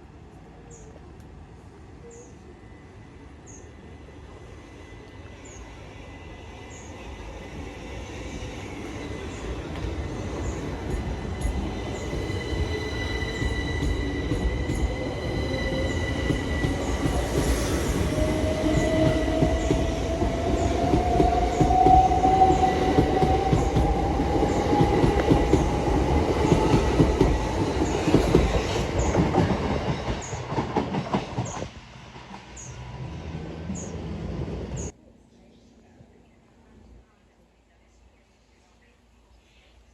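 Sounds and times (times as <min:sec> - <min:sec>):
train whine rising in pitch: 0:02.8 - 0:30.2
train wheels rumbling on rails: 0:03.8 - 0:35.0.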